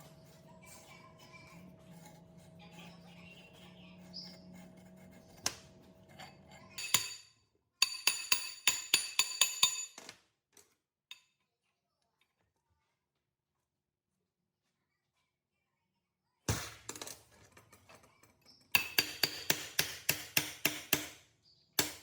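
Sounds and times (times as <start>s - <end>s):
hammer tapping ringing metal: 6.1s - 10.0s, 18.8s - 21.2s, 21.8s - 22.0s.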